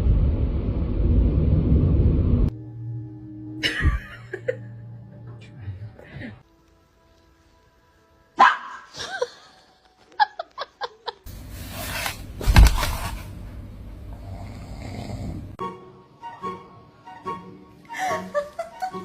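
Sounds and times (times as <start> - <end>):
rumbling noise: 0.0 - 2.5
dog barking and yipping: 8.4 - 8.9.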